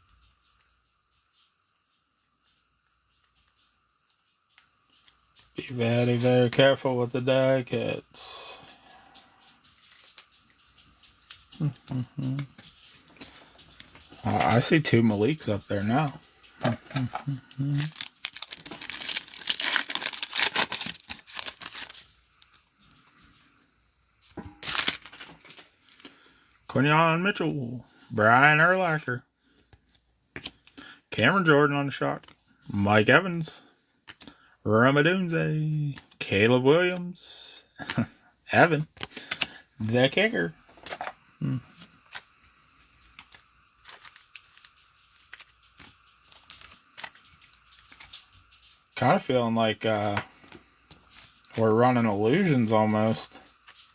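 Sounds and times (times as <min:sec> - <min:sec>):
wrapper tearing and crinkling: 0:17.0 - 0:22.6, 0:24.6 - 0:25.7, 0:43.2 - 0:48.3.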